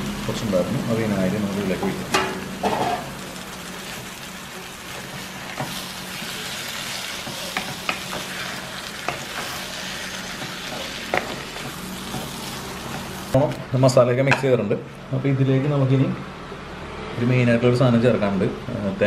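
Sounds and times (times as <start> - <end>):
liver sizzling in frying pan: 0.0 - 13.6.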